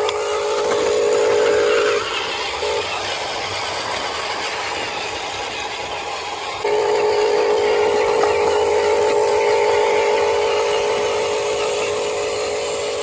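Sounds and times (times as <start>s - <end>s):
toy truck electric motor whining: 0.0s - 13.0s.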